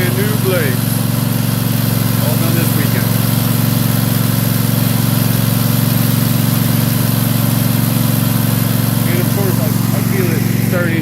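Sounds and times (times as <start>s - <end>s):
riding mower engine running: 0.0s - 11.0s.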